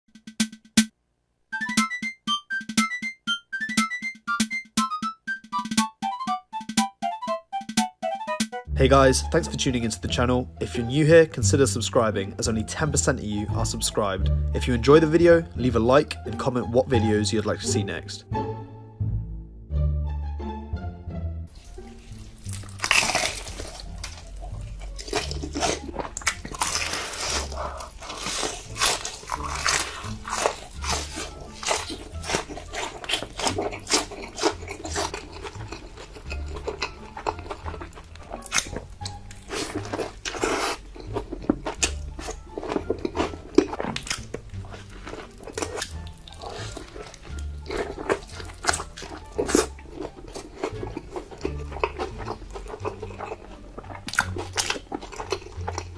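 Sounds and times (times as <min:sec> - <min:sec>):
background music with bass line: 0:01.6 - 0:54.8
crunching and chewing crisp food: 0:21.6 - 0:55.9.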